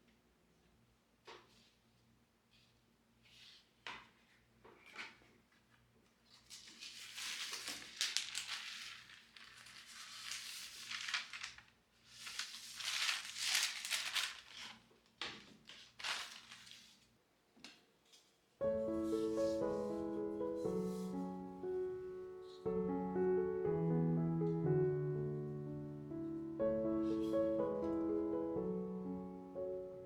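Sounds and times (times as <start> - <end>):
crinkling handling noise: 4.6 - 22.6.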